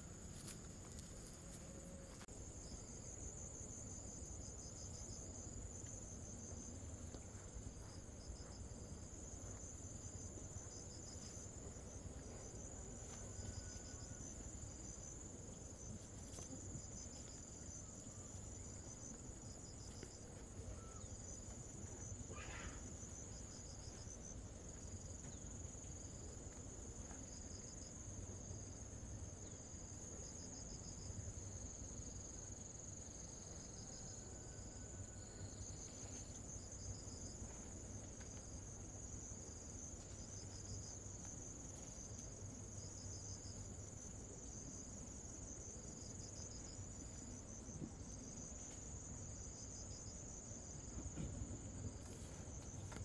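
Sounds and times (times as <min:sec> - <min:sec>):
insect high-pitched trill: 0:07.4 - 0:25.1.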